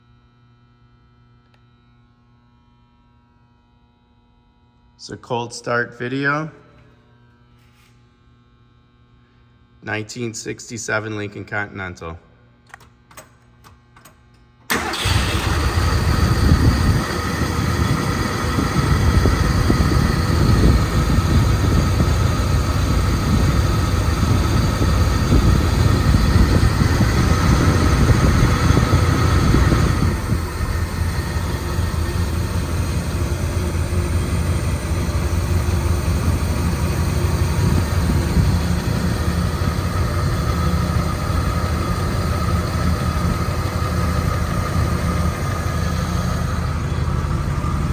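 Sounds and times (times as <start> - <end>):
car engine starting and idling: 14.7 - 47.9.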